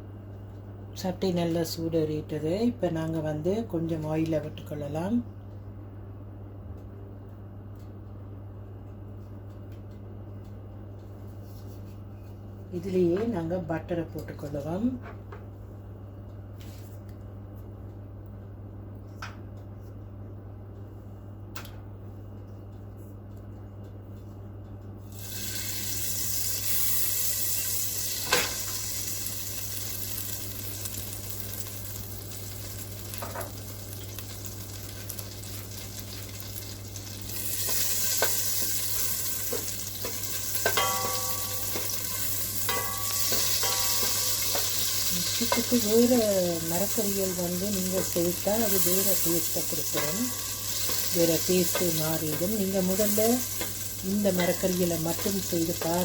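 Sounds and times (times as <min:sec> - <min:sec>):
steady low hum: 0:00.0 - 0:56.0
butter and oil sizzling in a pan: 0:25.1 - 0:56.0
spoon knocking and scraping a pan: 0:37.6 - 0:45.9, 0:47.8 - 0:56.0.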